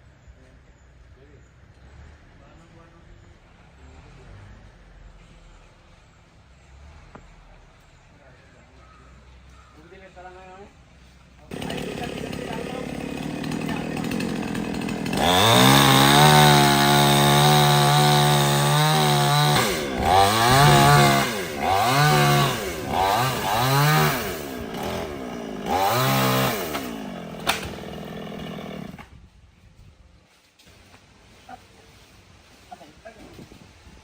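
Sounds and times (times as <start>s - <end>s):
chainsaw idling and revving: 11.5s - 29.1s
sharp click: 27.4s - 27.8s.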